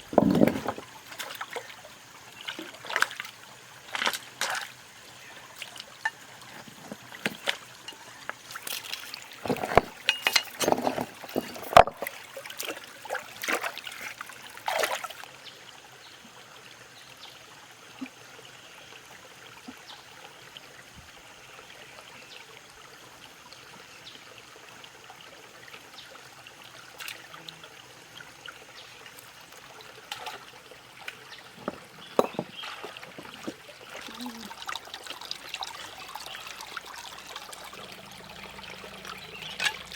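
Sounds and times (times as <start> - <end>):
water trickling: 0.0 - 39.9
sharp water splashes: 8.4 - 15.2.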